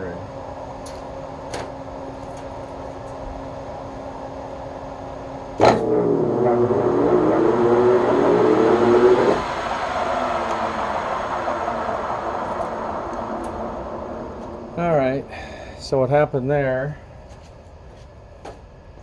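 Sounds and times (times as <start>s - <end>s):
low even noise: 0.0s - 17.2s
electrical hum: 0.0s - 19.0s
lathe motor humming: 5.6s - 15.3s.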